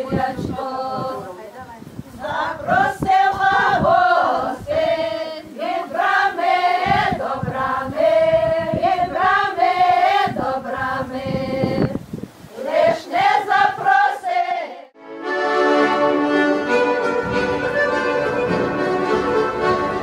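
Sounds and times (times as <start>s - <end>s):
group singing folk song: 0.0s - 1.4s, 2.2s - 15.0s
instrumental folk music: 15.0s - 20.0s.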